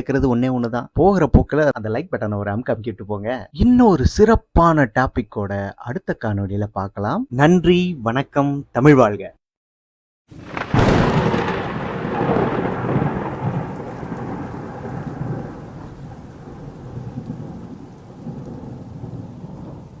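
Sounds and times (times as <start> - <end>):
thunder rumbling: 10.3 - 20.0
rain hissing: 10.4 - 20.0.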